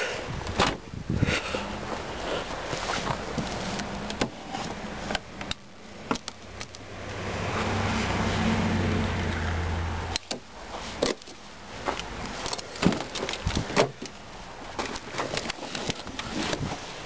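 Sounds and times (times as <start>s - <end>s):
car doors and seats clicking: 0.4s - 1.0s, 10.1s - 16.8s.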